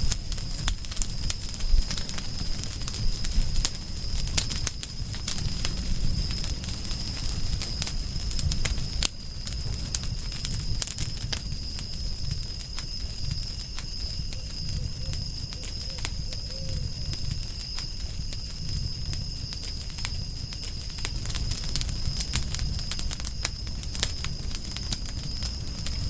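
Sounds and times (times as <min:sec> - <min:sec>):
campfire crackling and popping: 0:00.0 - 0:26.0
low rumble of flames: 0:00.0 - 0:26.0
faint low bird call: 0:14.3 - 0:17.2.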